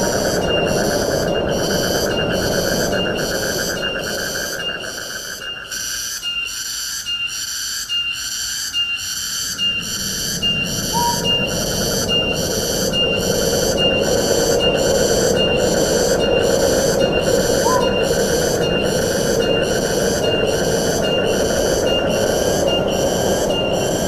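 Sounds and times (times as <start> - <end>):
wind rushing through trees: 0.0 - 6.7, 8.3 - 24.0
high pulsing call: 9.2 - 24.0.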